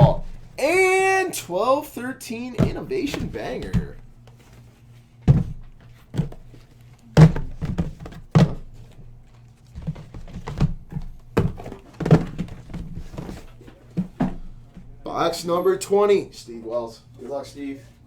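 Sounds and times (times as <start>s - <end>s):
faint steady hum: 0.0s - 18.0s
boxes set down on table: 2.6s - 9.0s, 9.8s - 14.9s.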